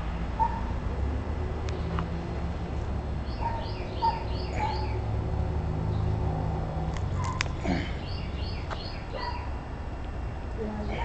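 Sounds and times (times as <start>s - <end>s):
small bird chirping: 3.2s - 5.1s, 7.1s - 9.6s.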